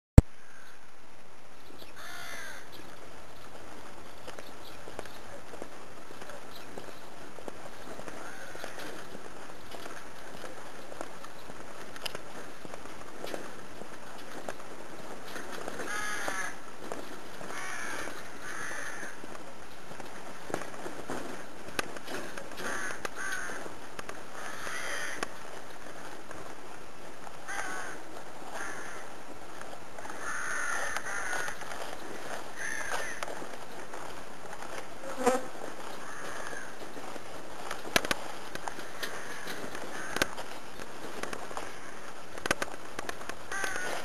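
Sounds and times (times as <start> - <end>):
birds calling: 30.1 - 33.9.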